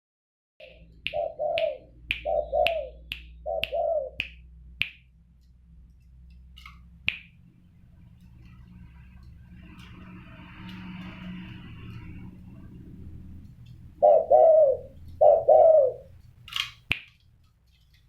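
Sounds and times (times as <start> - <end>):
dove cooing: 0.6 - 4.2, 14.0 - 16.2.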